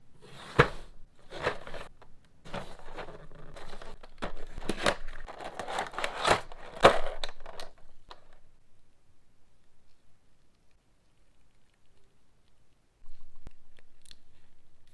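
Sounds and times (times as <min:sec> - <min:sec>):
plastic and card packaging rustling: 0:00.2 - 0:08.5.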